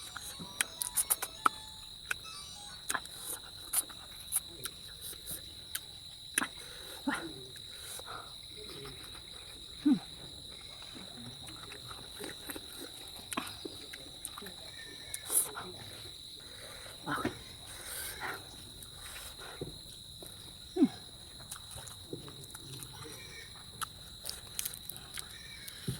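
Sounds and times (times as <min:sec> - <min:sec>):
steady high-pitched tone: 0:00.0 - 0:03.4
mouth clicks and smacks chewing: 0:00.0 - 0:06.6, 0:07.5 - 0:15.8, 0:21.3 - 0:25.9.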